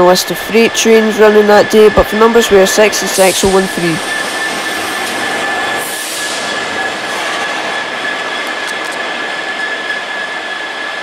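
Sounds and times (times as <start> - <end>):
diesel locomotive engine: 0.0 - 11.0
high whine: 0.0 - 11.0.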